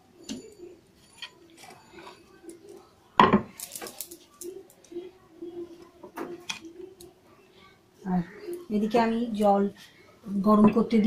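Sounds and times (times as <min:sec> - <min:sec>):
utensils and dishes clattering: 0:00.0 - 0:05.0, 0:05.7 - 0:07.1.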